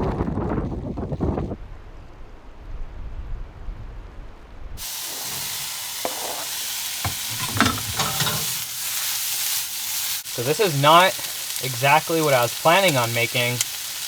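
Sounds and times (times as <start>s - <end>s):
low wind rumble: 0.0s - 5.6s
food sizzling in a pan: 4.8s - 14.0s
utensil knocking and scraping pan: 5.1s - 8.8s.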